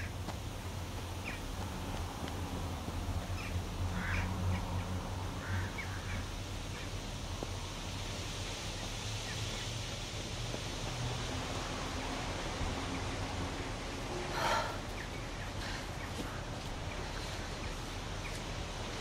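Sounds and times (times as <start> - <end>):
birds calling: 0.0 - 2.0, 2.9 - 7.1, 11.9 - 19.0
low outdoor hum: 0.0 - 19.0.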